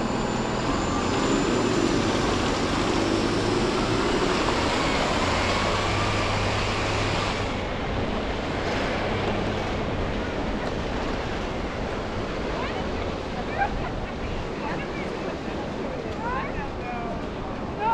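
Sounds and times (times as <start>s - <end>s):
tyre noise on road: 0.0s - 13.7s.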